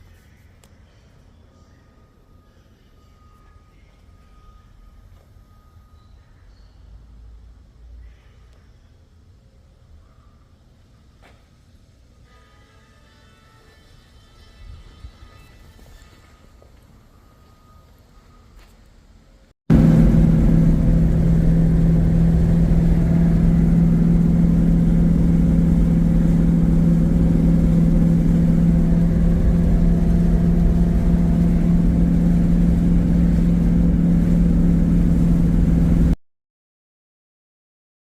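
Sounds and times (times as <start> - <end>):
car engine running steadily: 19.7 - 36.2.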